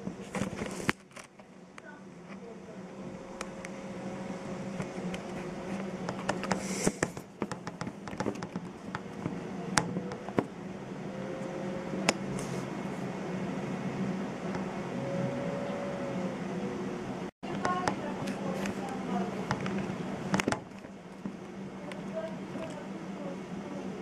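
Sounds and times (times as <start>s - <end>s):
heavy rain hissing: 6.4s - 7.1s.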